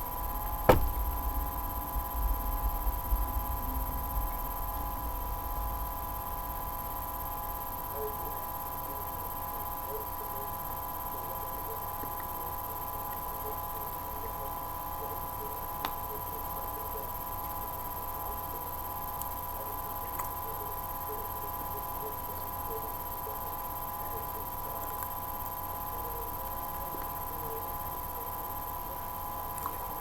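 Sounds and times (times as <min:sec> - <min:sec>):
electrical hum: 0:00.0 - 0:08.6.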